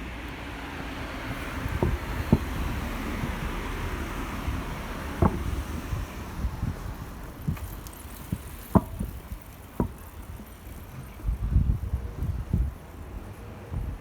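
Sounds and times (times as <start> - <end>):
wind rumble on microphone: 0.8 - 14.0.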